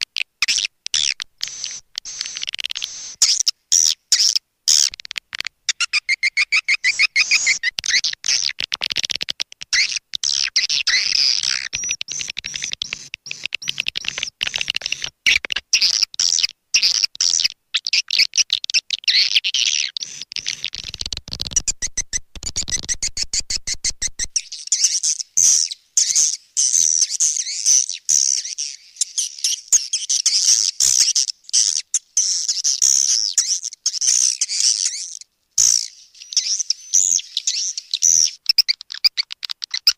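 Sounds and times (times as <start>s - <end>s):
swiftlet twittering chirps: 20.0s - 39.0s.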